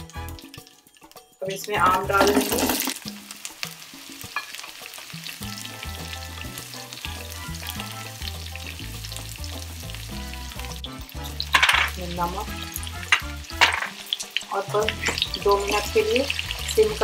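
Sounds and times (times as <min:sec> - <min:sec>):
food sizzling in hot oil: 0:00.0 - 0:17.0
spatula stirring in a pan: 0:03.2 - 0:09.5.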